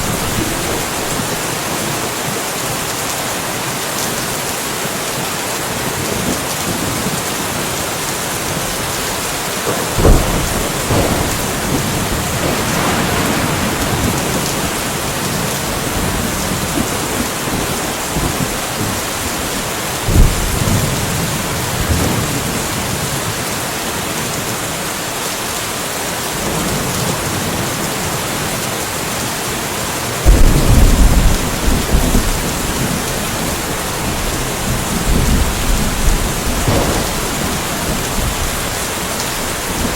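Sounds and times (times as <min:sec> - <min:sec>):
thunder claps: 0:00.0 - 0:01.5, 0:08.5 - 0:22.6, 0:30.2 - 0:39.9
thunder rolling: 0:00.0 - 0:01.5, 0:08.5 - 0:22.6, 0:30.2 - 0:39.9
steady rain: 0:00.0 - 0:39.9.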